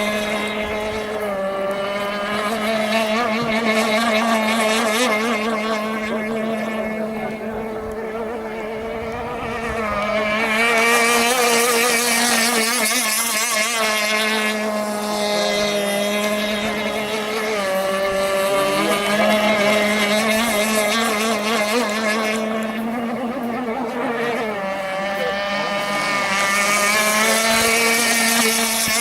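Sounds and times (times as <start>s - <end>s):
model boat engine buzzing: 0.0s - 29.0s.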